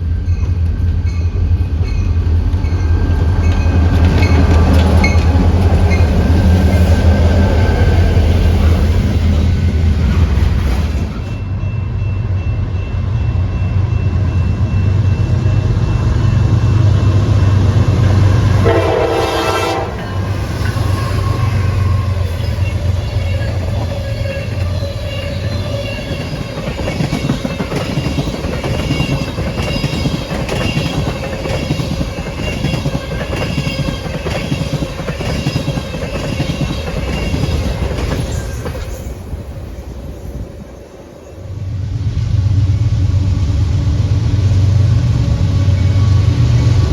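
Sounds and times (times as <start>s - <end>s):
diesel locomotive engine running: 0.0s - 38.7s, 41.5s - 46.9s
train horn blast: 18.4s - 22.4s
train wheels clacking over rail joints: 22.0s - 39.1s.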